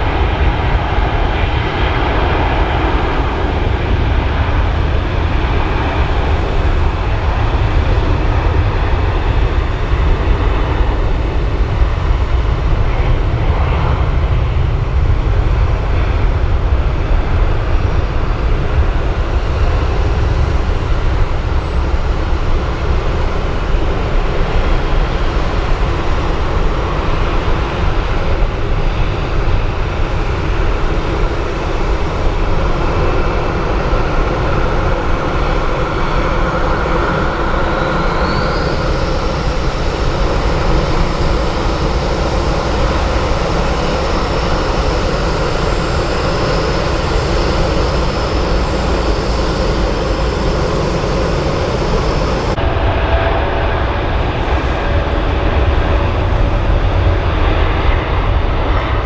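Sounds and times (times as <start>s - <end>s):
high turbine whine: 0.0s - 59.0s
jet engines roaring: 0.0s - 59.0s.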